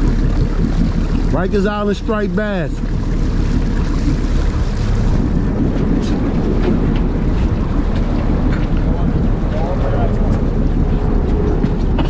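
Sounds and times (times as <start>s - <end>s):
water washing along boat: 0.0s - 12.0s
wind rumbling on microphone: 0.0s - 12.0s.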